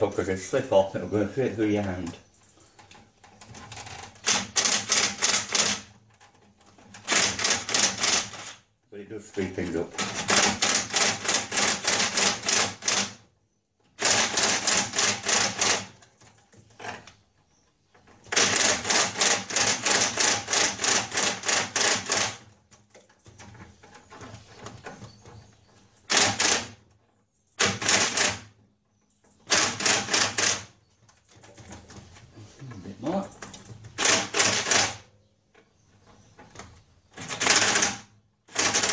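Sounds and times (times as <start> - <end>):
powered driver rapid clicking: 3.6 - 5.9, 7.0 - 8.6, 14.0 - 16.0, 18.3 - 22.6, 26.1 - 26.8, 27.6 - 28.5, 29.4 - 30.7, 33.9 - 35.0, 37.2 - 38.9.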